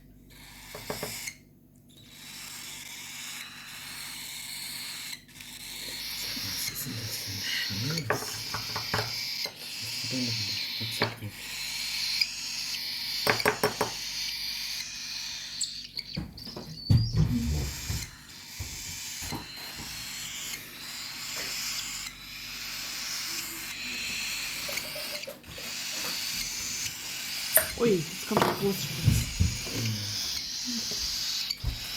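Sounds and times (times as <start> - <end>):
nestling birds begging calls: 0.2 - 31.9.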